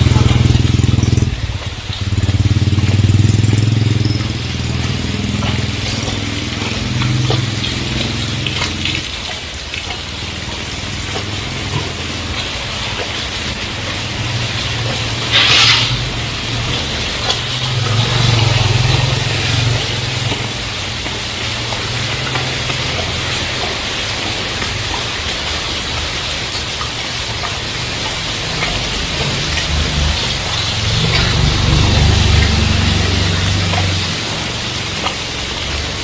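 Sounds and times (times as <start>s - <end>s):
heavy rain: 0.0s - 36.0s
passing vehicle engine hum: 0.0s - 36.0s
loud hiss: 15.2s - 16.4s.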